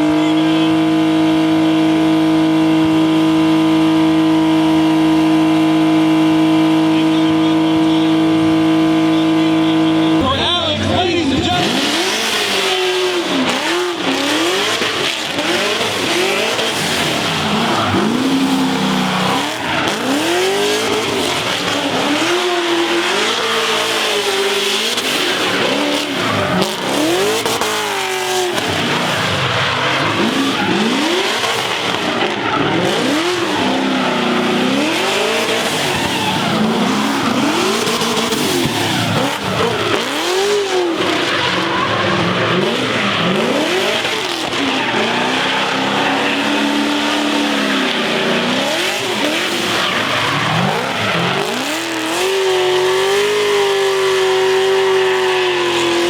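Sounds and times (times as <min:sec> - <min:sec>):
car engine revving: 0:00.0 - 0:56.0
tyres squealing: 0:06.7 - 0:56.0.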